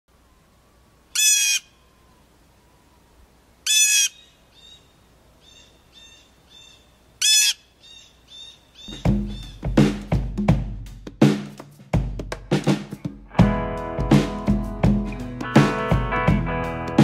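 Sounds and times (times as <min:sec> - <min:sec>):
loud harsh bird calls: 0:01.1 - 0:02.2, 0:03.6 - 0:09.8
fainter short bird calls: 0:01.1 - 0:09.8.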